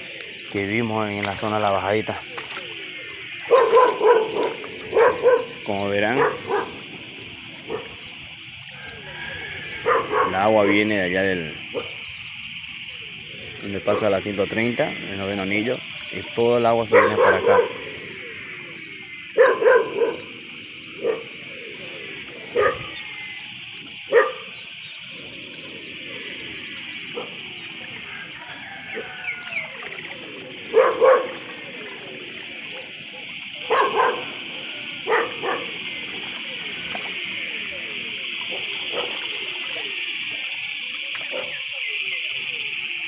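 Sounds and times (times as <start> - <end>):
dog barking: 3.4 - 6.8, 7.7 - 8.0, 9.8 - 10.8, 16.9 - 17.8, 19.4 - 20.3, 21.0 - 21.3, 22.5 - 23.0, 24.1 - 24.5, 30.7 - 31.5, 33.6 - 36.5, 38.4 - 39.4, 41.2 - 41.6.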